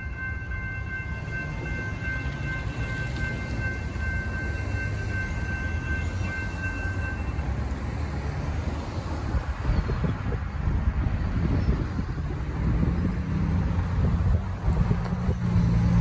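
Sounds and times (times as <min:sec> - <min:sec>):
freight train rumbling on rails: 0:00.0 - 0:16.0
wind buffeting microphone: 0:08.7 - 0:16.0.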